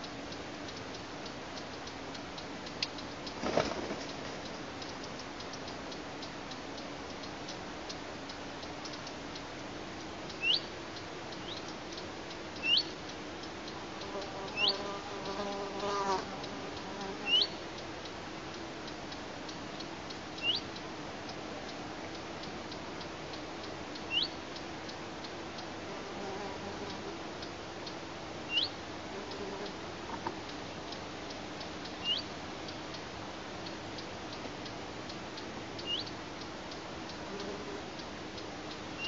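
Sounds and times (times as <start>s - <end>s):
faint regular ticking: 0.0s - 39.0s
low steady hum: 0.0s - 39.0s
lower longer bird call: 28.5s - 28.8s.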